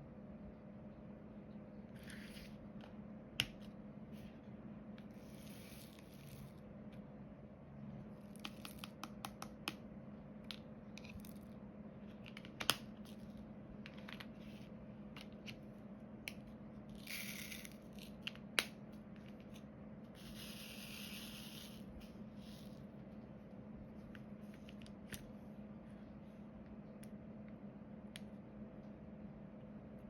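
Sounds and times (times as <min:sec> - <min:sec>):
faint steady hum: 0:00.0 - 0:30.0
small clicks and taps: 0:08.4 - 0:09.8.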